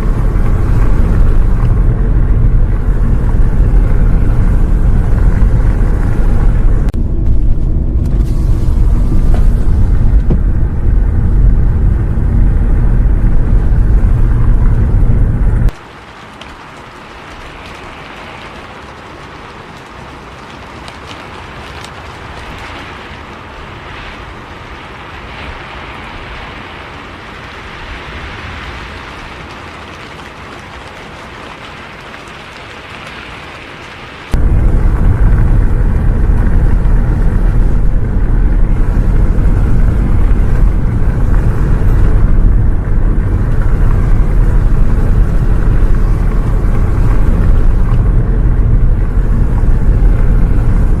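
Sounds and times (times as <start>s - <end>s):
bus engine rumble: 0.0s - 15.8s, 34.3s - 51.0s
rain hissing on a bus: 0.0s - 51.0s.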